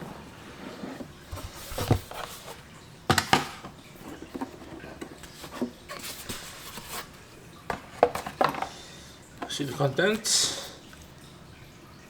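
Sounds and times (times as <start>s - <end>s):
rustling: 0.0s - 2.7s, 3.5s - 7.3s.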